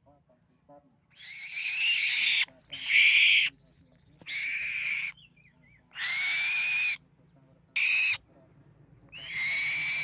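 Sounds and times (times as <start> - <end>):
bird giving harsh hissy calls: 1.2 - 3.5, 4.3 - 5.1, 6.0 - 7.0, 9.2 - 10.0.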